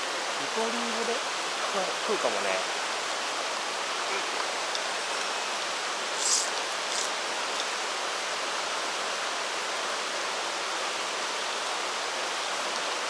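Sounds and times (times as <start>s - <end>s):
stream water rushing over rocks: 0.0s - 13.0s
brief high hisses: 6.2s - 7.1s.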